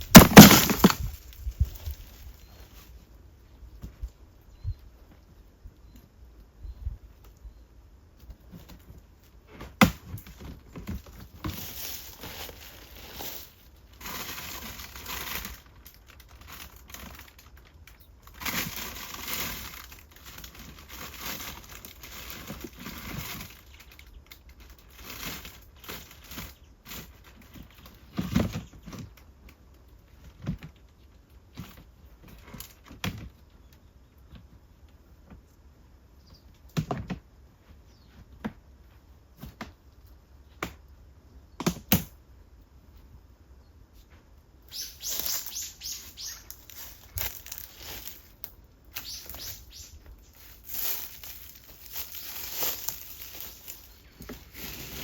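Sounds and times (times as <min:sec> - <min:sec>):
rustling and crinkling: 0:00.0 - 0:04.3, 0:08.2 - 0:40.6, 0:43.8 - 0:55.0.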